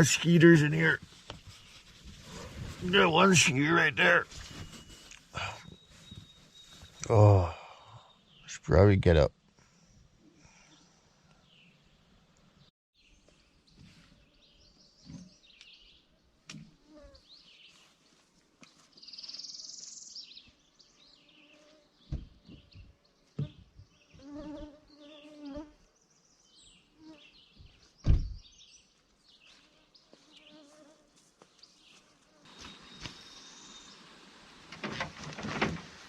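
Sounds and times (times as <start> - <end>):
faint bird chirps: 4.5 - 8.7
mosquitoes buzzing: 24.1 - 25.8.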